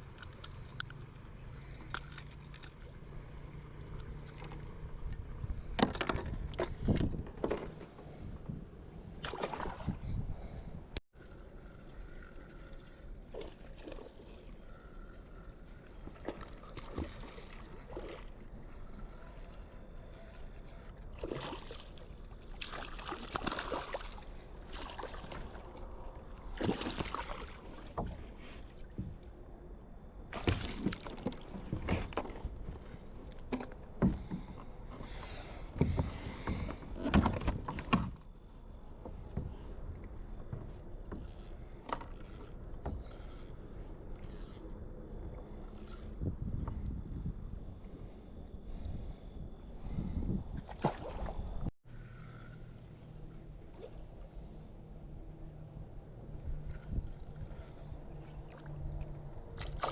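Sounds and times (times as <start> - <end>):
kayak paddle splashing water: 9.2 - 10.0, 15.7 - 18.9, 21.1 - 28.9, 30.3 - 33.0, 50.6 - 51.6, 58.4 - 59.9.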